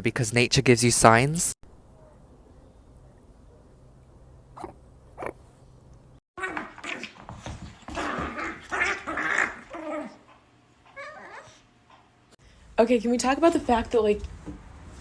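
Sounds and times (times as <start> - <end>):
dog growling and barking: 6.4 - 11.7.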